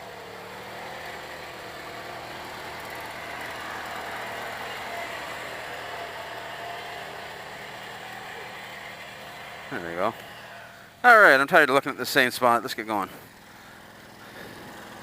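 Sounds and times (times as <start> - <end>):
small tractor engine at high revs: 0.0 - 11.4, 12.2 - 15.0.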